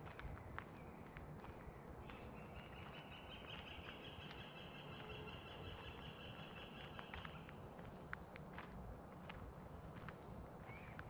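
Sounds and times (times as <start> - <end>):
footsteps on a dirt path: 0.0 - 2.8, 7.0 - 11.0.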